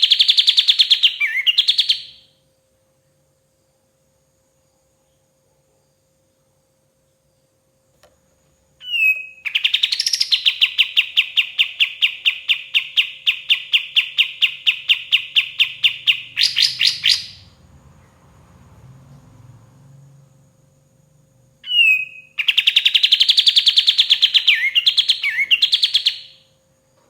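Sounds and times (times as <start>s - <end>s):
songbird singing rapid notes: 0.0s - 2.2s, 8.8s - 17.5s, 21.6s - 26.4s.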